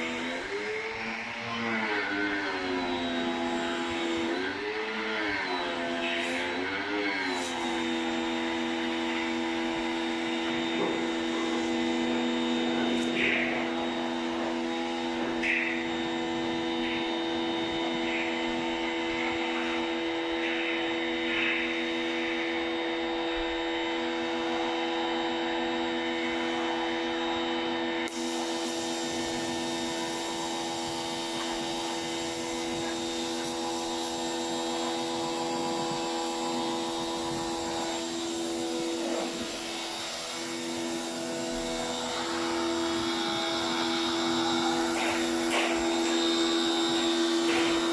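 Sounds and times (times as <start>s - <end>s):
electric motor humming: 0.0s - 47.9s.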